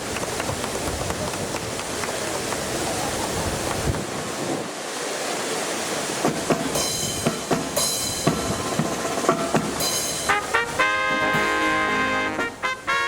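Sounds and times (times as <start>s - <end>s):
wind buffeting microphone: 0.0s - 4.9s
marching band drums: 6.2s - 13.0s
cymbal crashes: 6.8s - 10.6s
brass fanfare: 10.0s - 13.0s.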